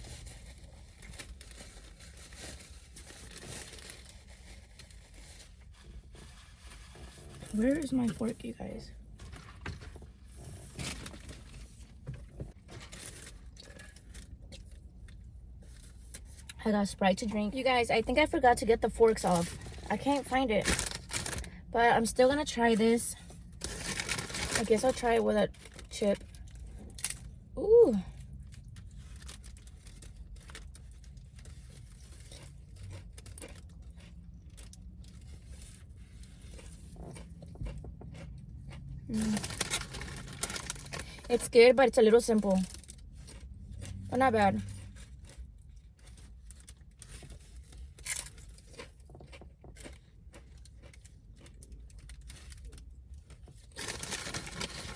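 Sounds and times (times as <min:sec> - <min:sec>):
rustling and scraping of rummaging: 0:00.0 - 0:16.5, 0:17.1 - 0:51.0, 0:51.9 - 0:54.9
chewing crunchy chip: 0:19.4 - 0:21.6, 0:23.2 - 0:41.3, 0:42.3 - 0:54.9.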